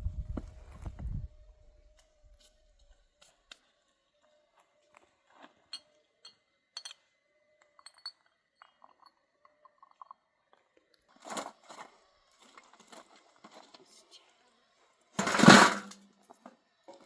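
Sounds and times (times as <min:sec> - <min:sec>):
small hard objects clinking: 0:05.7 - 0:10.2.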